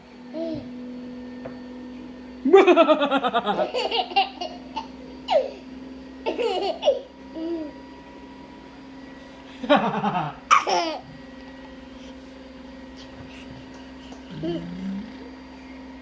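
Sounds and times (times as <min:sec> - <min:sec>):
baby laughing: 0:02.7 - 0:05.6, 0:06.3 - 0:07.7, 0:10.5 - 0:11.1.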